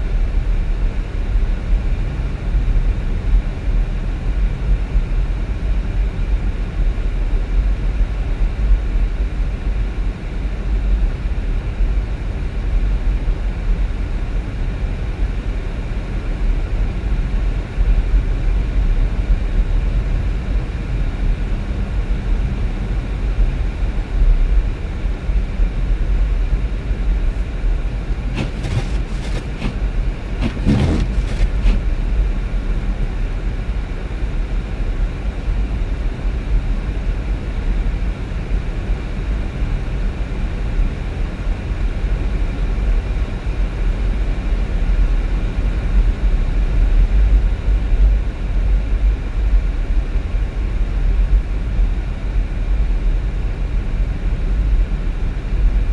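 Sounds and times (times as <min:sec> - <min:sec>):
vehicle driving on road: 0:27.3 - 0:31.9.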